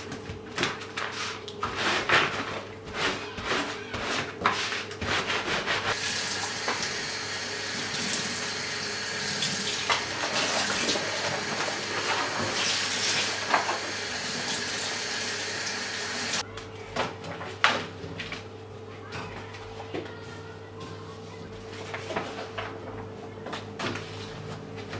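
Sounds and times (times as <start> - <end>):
tap water running into sink: 6.0 - 16.4.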